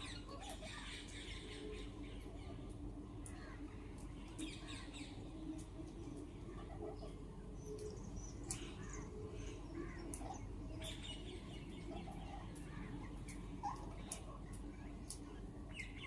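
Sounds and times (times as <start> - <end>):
parrots chirping and squawking: 0.0 - 1.4, 9.8 - 16.0
low background noise: 0.0 - 16.0.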